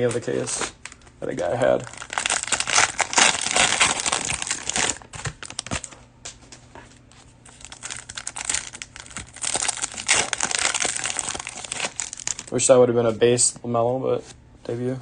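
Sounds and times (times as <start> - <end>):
cellophane wrapper crinkling: 0.6 - 6.0, 7.1 - 12.7.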